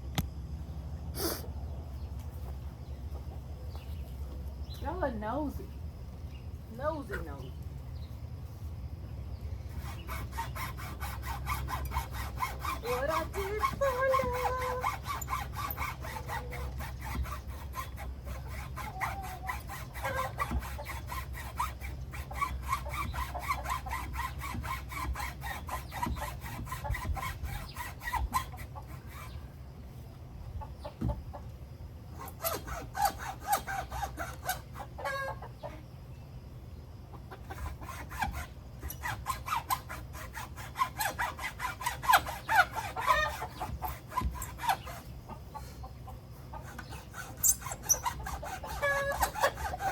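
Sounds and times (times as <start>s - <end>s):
saw cutting wood: 9.6s - 29.4s, 32.1s - 35.3s, 37.3s - 45.8s, 46.4s - 49.9s
chickens clucking: 30.4s - 31.8s, 33.6s - 36.0s, 36.9s - 38.0s, 44.7s - 47.2s, 47.8s - 49.9s.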